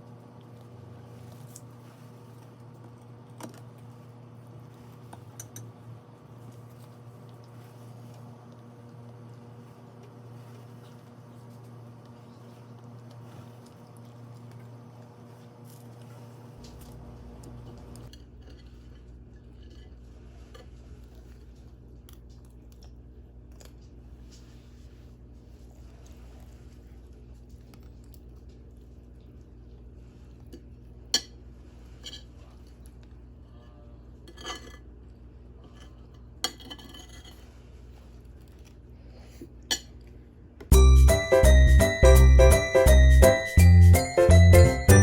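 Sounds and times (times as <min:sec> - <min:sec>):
cheerful jingling music: 0:40.7 - 0:45.0.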